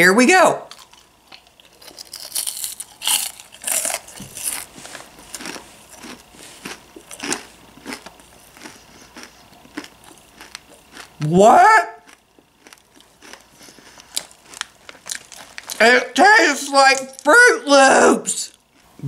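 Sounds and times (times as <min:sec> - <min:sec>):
crunching popcorn: 0:00.7 - 0:11.4, 0:12.0 - 0:17.3
plastic bag crinkling: 0:12.8 - 0:15.8.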